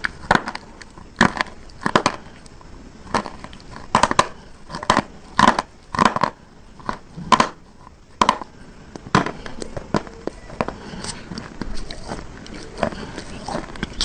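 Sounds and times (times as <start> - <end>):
crunching brittle bar: 0.0 - 14.0.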